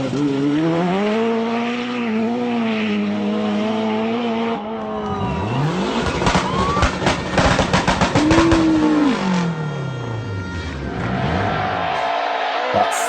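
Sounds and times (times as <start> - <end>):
rally car engine at high revs: 0.0 - 12.6.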